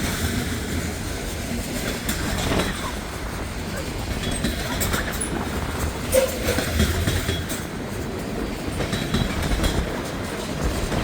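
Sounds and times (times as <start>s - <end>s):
wheels clicking over rail joints: 0.0s - 11.0s.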